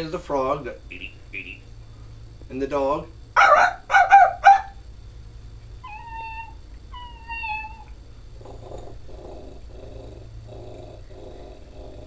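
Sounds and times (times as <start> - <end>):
man imitating dog whines: 5.8 - 7.9.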